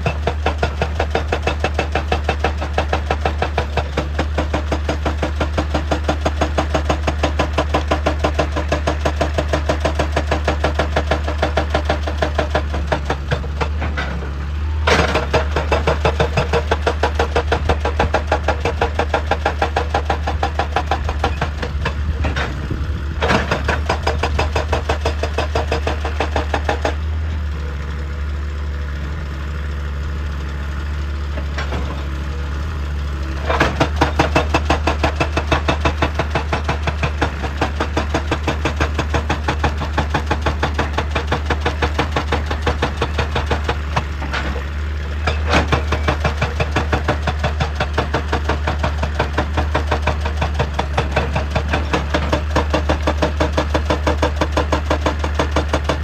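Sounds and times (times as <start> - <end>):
excavator engine running: 0.0 - 56.0.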